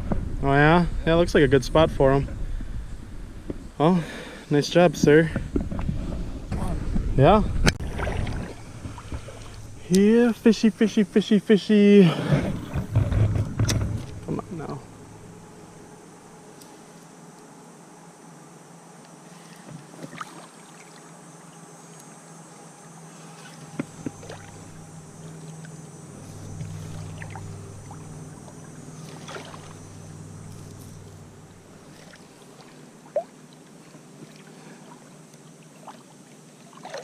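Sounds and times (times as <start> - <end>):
water moving: 5.4 - 11.3, 12.0 - 15.9, 19.2 - 22.0, 23.0 - 37.0
low rumble: 23.8 - 32.3.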